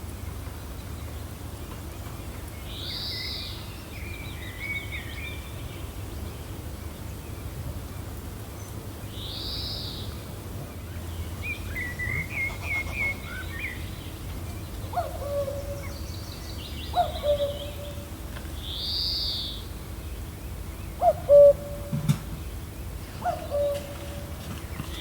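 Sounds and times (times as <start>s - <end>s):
songbirds chirping and trilling: 0.0s - 25.0s
low hooting calls: 12.0s - 13.9s, 21.0s - 22.0s, 23.1s - 25.0s.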